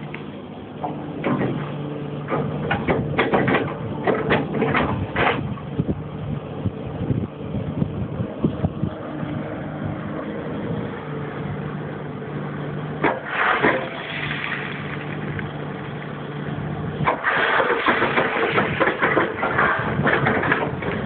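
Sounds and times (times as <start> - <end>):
excavator diesel engine running: 0.0 - 21.0
sharp knock and rattle: 2.3 - 5.4, 17.0 - 21.0.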